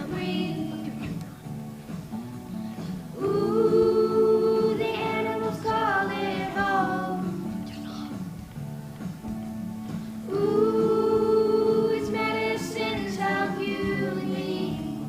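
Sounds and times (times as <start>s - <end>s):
children's choir singing: 0.0s - 1.4s, 3.0s - 8.2s, 10.2s - 15.0s
musical accompaniment: 0.0s - 15.0s.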